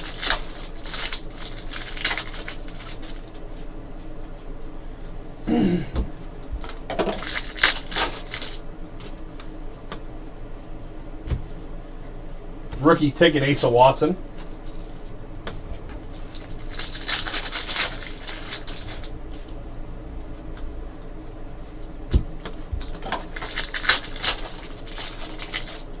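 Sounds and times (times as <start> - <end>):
trading cards rustling: 0.0 - 3.6, 6.6 - 8.6, 16.1 - 19.5, 22.8 - 26.0.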